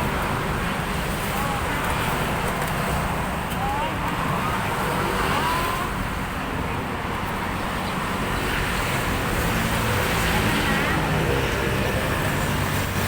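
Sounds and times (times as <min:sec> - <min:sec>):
road traffic rumble: 0:00.0 - 0:13.0
faint voices: 0:01.1 - 0:07.5.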